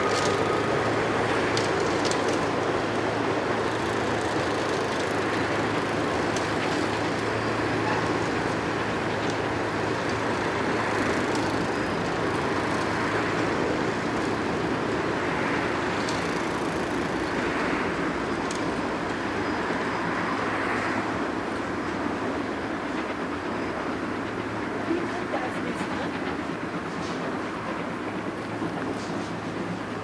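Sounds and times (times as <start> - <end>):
faint clicks: 0.0 - 2.8, 15.2 - 20.0
moving vehicle running noise: 0.0 - 30.0.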